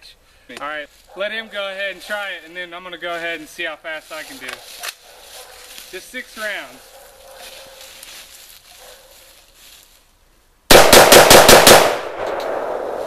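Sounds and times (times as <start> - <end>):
gunshot echo: 10.7 - 13.0
rifle firing rapid shots: 10.7 - 13.0.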